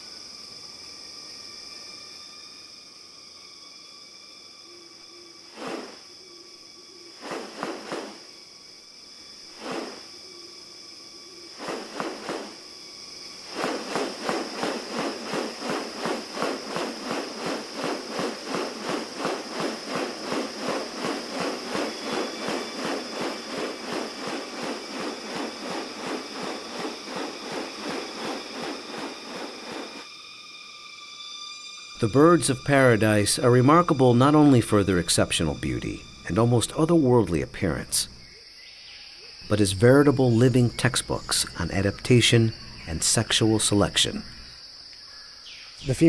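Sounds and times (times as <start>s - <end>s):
high insect drone: 0.0s - 46.0s
fast regular insect pulsing: 5.4s - 10.6s, 11.3s - 31.4s.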